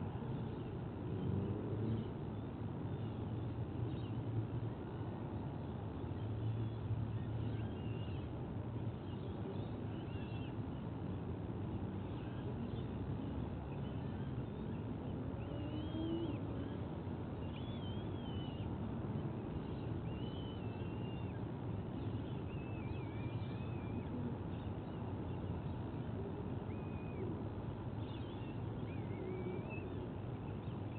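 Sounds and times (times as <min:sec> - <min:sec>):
faint wavering bird calls: 0:11.8 - 0:30.9.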